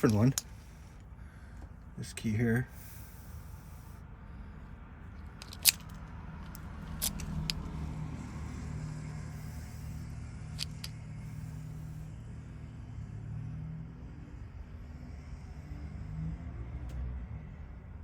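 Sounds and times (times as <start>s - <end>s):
low steady hum: 0.0s - 18.0s
small metallic lock clicks: 5.4s - 7.7s, 10.6s - 11.0s.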